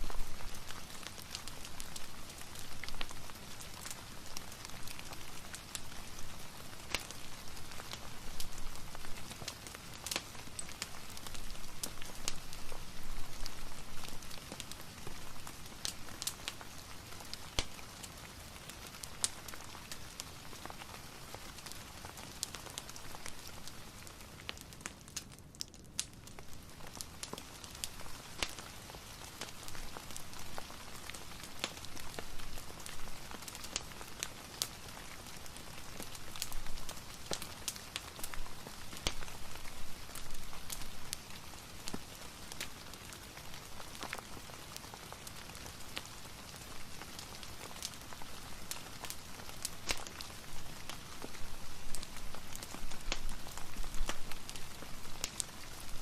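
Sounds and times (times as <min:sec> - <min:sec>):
rain hiss: 0:00.0 - 0:24.4, 0:26.4 - 0:56.0
fireplace crackling and popping: 0:00.0 - 0:56.0.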